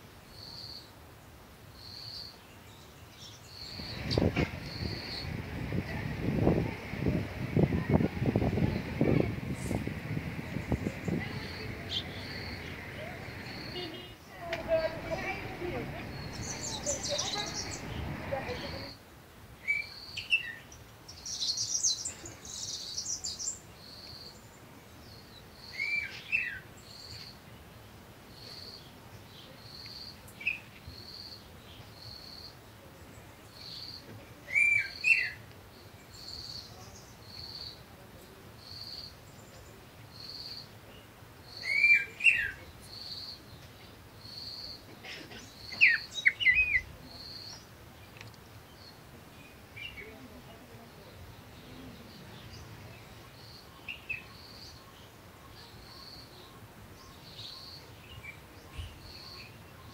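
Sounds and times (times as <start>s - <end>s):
bird warbling: 10.5s - 14.0s, 14.6s - 18.9s.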